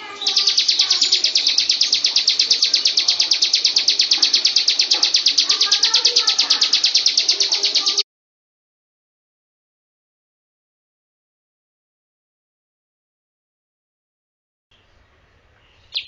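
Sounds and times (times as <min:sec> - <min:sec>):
bird singing fast trill: 0:00.0 - 0:08.0, 0:14.7 - 0:16.0.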